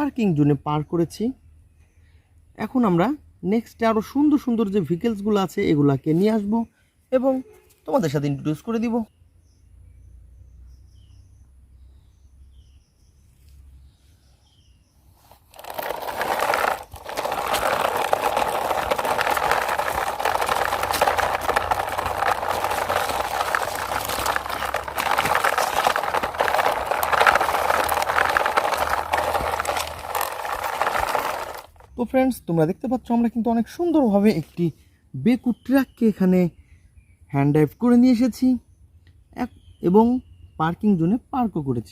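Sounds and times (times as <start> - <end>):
toy wheels scraping over rough wall: 15.2 - 31.9.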